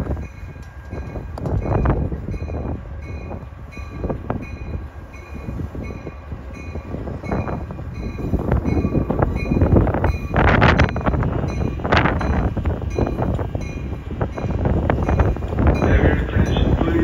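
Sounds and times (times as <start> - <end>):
train rolling with low rumble: 0.0 - 17.0.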